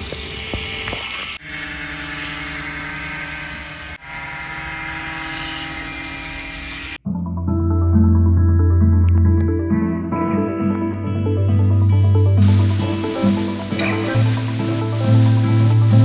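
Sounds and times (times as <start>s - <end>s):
model plane motors whirring: 0.0s - 7.0s
music: 7.0s - 16.0s.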